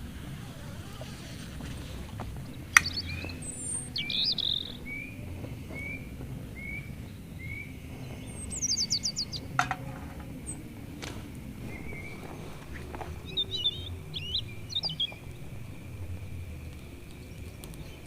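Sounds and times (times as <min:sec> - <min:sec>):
birds high trills: 0:00.0 - 0:18.0
sharp clicks: 0:02.7 - 0:03.4.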